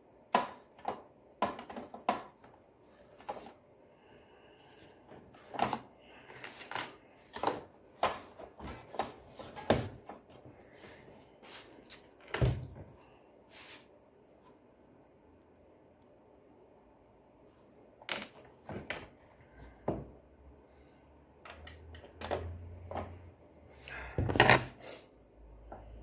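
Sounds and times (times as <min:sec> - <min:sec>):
tools and parts clicking and knocking: 0:00.3 - 0:02.6, 0:05.5 - 0:08.3, 0:18.0 - 0:19.2, 0:21.4 - 0:23.1.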